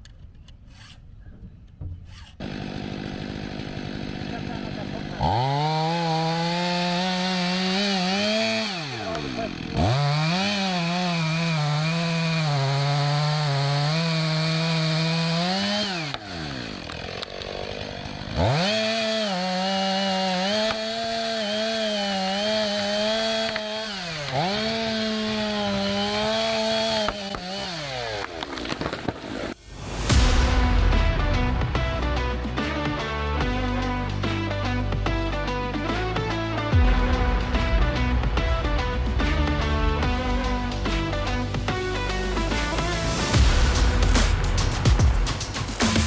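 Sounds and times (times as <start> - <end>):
chainsaw cutting wood: 2.1 - 34.8, 37.9 - 46.0.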